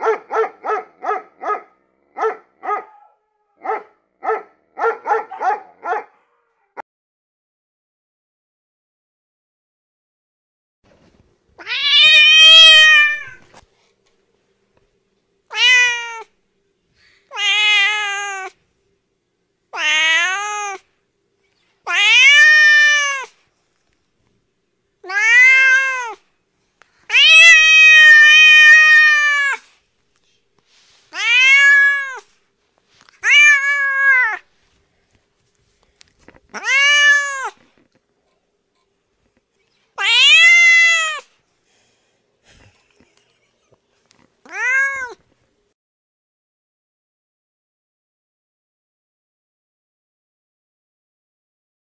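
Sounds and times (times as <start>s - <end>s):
cat meowing: 11.6s - 13.4s, 15.5s - 16.3s, 17.3s - 18.6s, 19.8s - 20.8s, 21.9s - 23.3s, 25.0s - 26.2s, 27.1s - 29.7s, 31.1s - 32.3s, 33.2s - 34.5s, 36.5s - 37.7s, 40.0s - 41.2s, 44.4s - 45.2s.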